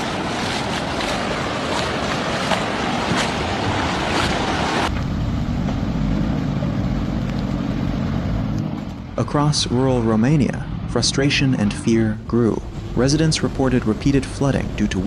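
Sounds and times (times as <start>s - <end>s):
floodwater rushing: 0.0s - 15.0s
low dull rumble: 4.8s - 15.0s.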